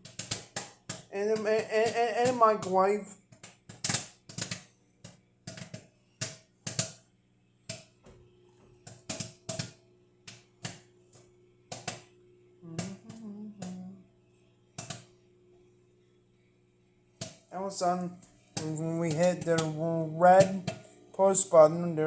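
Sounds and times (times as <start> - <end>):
popcorn popping in a bag: 0.0 - 16.1, 16.9 - 22.0
microwave oven humming: 7.1 - 22.0.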